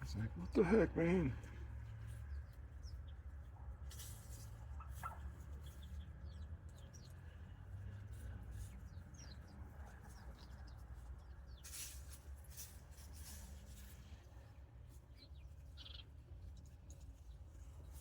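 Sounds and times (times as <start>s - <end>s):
small birds chirping: 0.0s - 3.6s, 4.7s - 18.0s.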